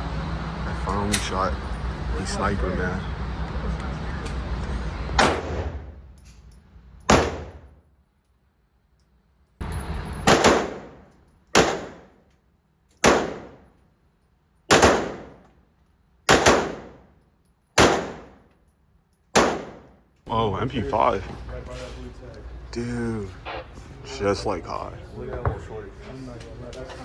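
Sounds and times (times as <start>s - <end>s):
gunshots with echo: 5.2s - 5.9s, 7.1s - 7.7s, 10.3s - 11.0s, 11.6s - 12.1s, 13.0s - 13.6s, 14.7s - 15.4s, 16.3s - 17.0s, 17.8s - 18.4s, 19.4s - 19.9s.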